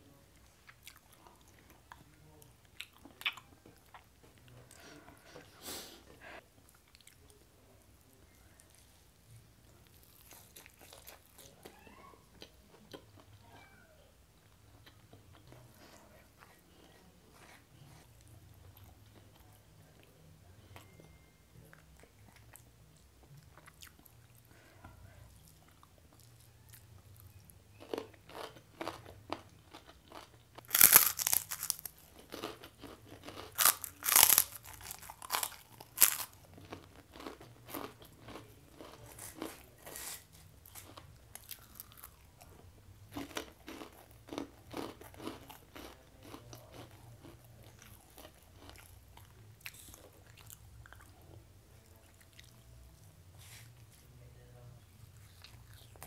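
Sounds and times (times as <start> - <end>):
crunchy cracker biting and chewing: 27.7 - 42.3, 43.1 - 51.1.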